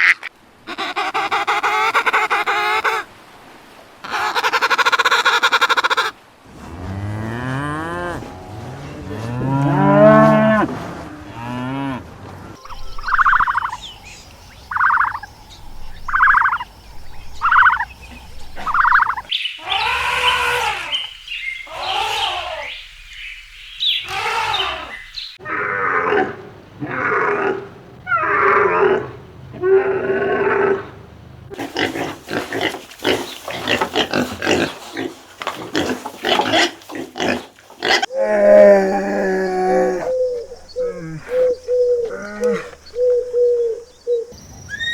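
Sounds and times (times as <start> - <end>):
drawn-out animal calls: 10.2 - 16.8, 17.4 - 21.0, 37.3 - 44.9
long rising and falling cries: 12.6 - 21.1, 38.1 - 43.7
short animal calls: 14.7 - 15.3, 16.0 - 16.7, 17.4 - 21.0.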